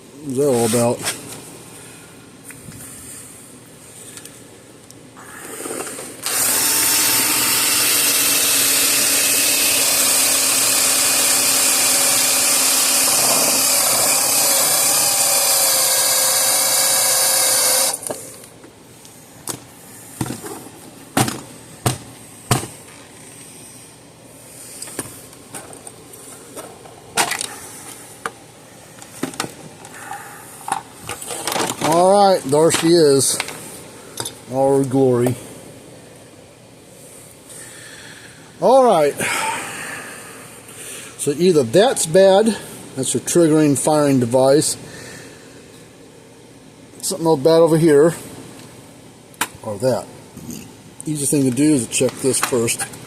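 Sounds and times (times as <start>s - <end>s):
electric drill running under load: 6.2s - 18.2s.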